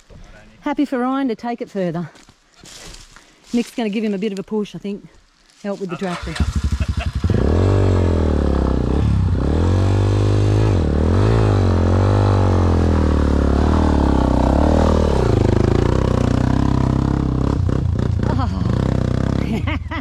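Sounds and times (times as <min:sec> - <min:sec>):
motorcycle engine revving hard: 0:06.1 - 0:19.6.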